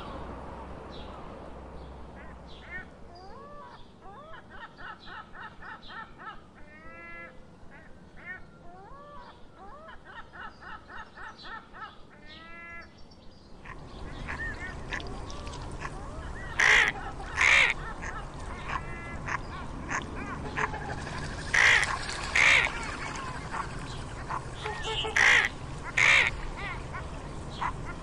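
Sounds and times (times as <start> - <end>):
birds calling: 8.4 - 28.0
loud harsh bird calls: 13.6 - 28.0.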